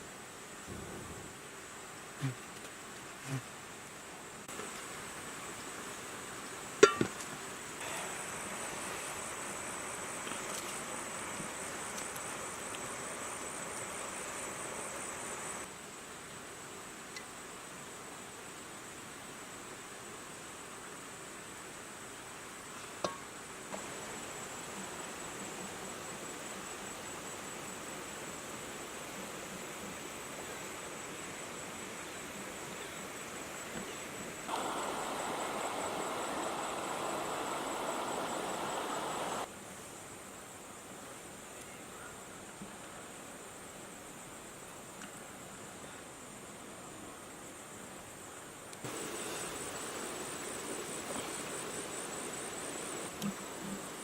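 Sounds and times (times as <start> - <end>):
background hiss: 0.0 - 54.0
high-pitched insect drone: 7.8 - 15.7, 34.5 - 39.5
insect trilling: 34.5 - 39.5.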